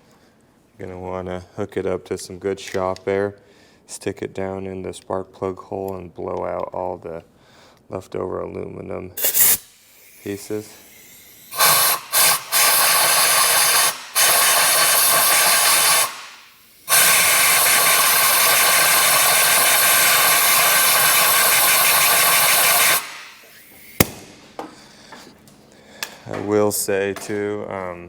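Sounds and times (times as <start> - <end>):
compressed air hissing from blow gun: 9.2 - 24.5
sharp click: 24.0 - 24.4.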